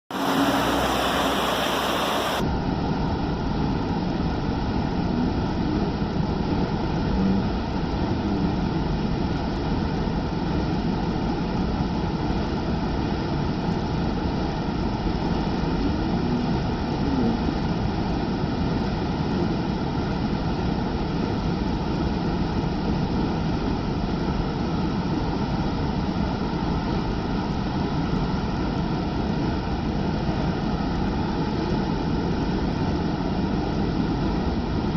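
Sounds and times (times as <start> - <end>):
waterfall roaring: 0.1 - 2.4.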